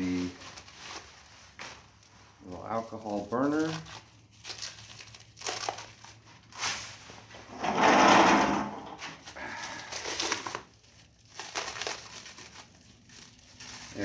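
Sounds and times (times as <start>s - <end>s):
packaging rustling and crinkling: 0.0s - 8.1s, 8.8s - 14.0s
rustling scrape: 6.2s - 14.0s.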